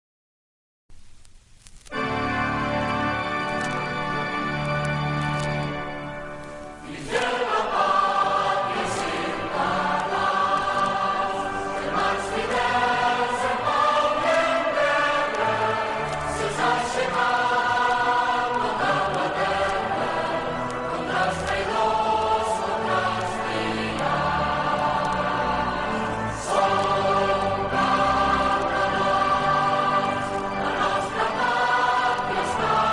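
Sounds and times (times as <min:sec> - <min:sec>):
choir singing: 0:06.7 - 0:32.9.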